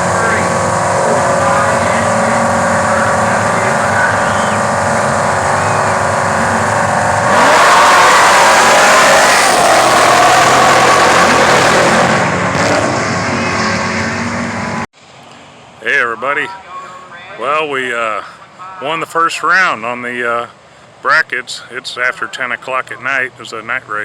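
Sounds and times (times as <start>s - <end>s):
full-throttle launch: 0.0s - 14.8s
drag racing car engines: 0.0s - 24.0s.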